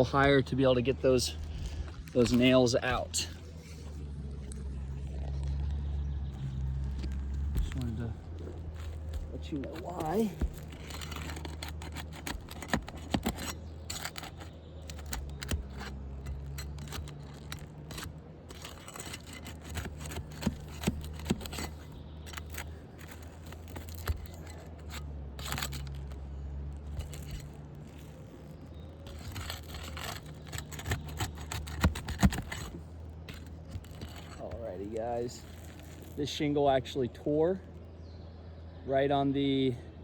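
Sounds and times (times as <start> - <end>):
roof shingles scraping and crackling: 0.0 - 37.8.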